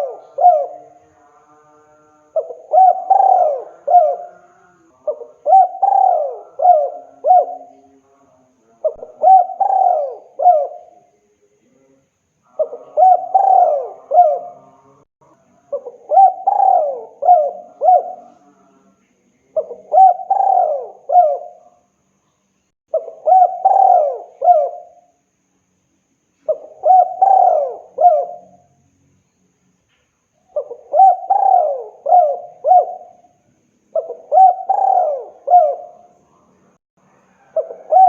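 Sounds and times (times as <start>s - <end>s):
dove cooing: 0.0s - 1.0s, 2.3s - 7.8s, 8.8s - 11.0s, 12.5s - 14.8s, 15.7s - 18.5s, 19.6s - 21.7s, 22.9s - 25.1s, 26.4s - 28.6s, 30.5s - 33.3s, 33.9s - 36.2s, 37.3s - 38.0s.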